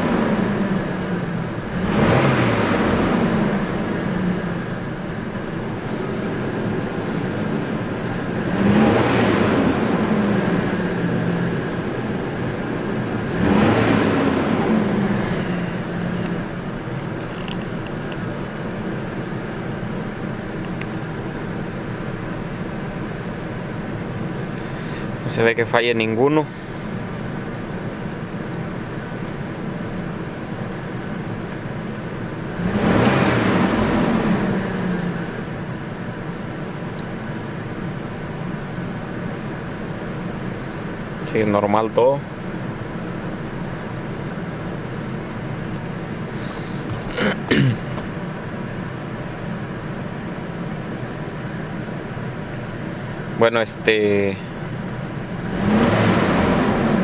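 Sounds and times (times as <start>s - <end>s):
truck engine idling and revving: 0.0s - 57.0s.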